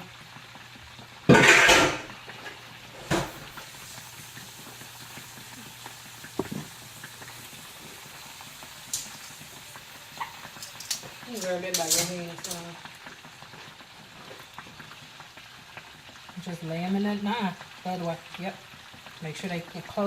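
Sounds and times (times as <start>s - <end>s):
cookware clattering: 1.3s - 2.1s.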